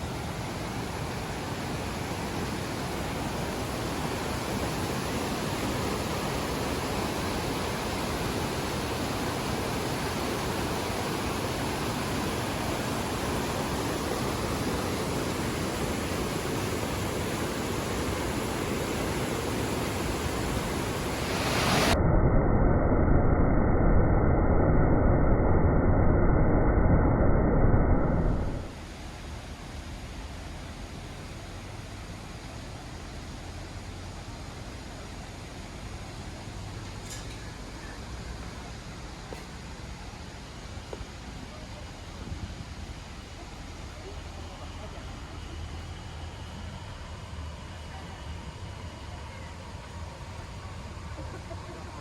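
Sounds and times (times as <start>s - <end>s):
waterfall rushing: 17.2s - 22.0s.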